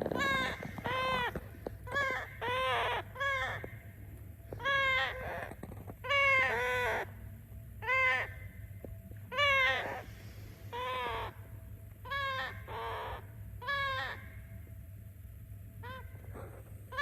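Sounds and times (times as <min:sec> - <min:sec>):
parrot squawking: 0:00.0 - 0:03.7.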